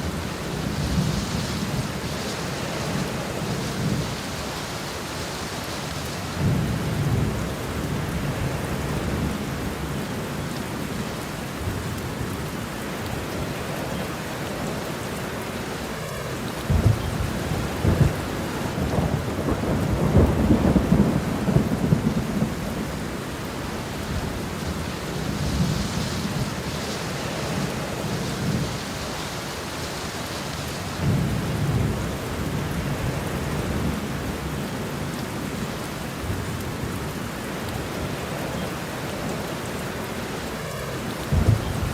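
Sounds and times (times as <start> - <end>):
steady rain: 0.0 - 41.9
rolling thunder: 16.6 - 29.2, 41.2 - 41.9.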